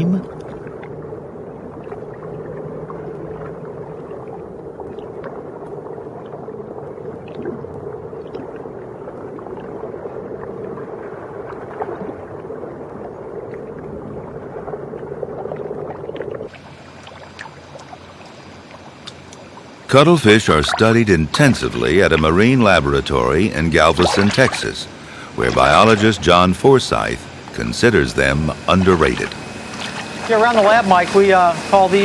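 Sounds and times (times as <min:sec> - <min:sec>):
small trickling sounds: 0:15.0 - 0:19.9
steady low drone: 0:19.9 - 0:32.0.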